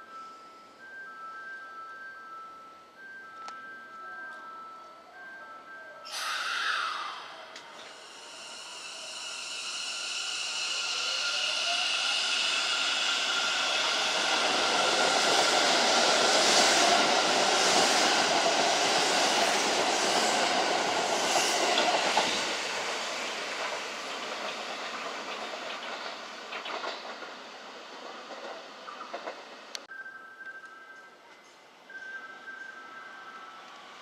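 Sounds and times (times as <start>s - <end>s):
electric train motor whine: 6.1s - 21.1s
train wheels on rails: 6.1s - 29.9s.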